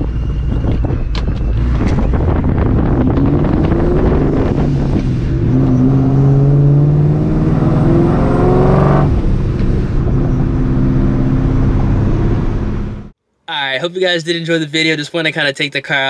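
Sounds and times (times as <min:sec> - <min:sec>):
car engine accelerating: 0:00.0 - 0:13.2.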